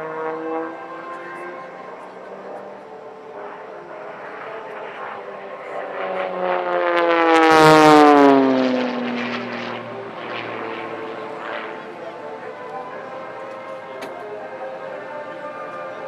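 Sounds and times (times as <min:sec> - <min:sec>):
propeller plane engine buzz: 0:00.0 - 0:16.0.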